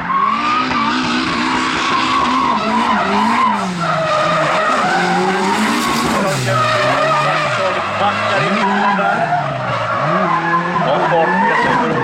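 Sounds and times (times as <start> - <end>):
car engine revving: 0.0 - 12.0
tyre screech: 0.1 - 12.0.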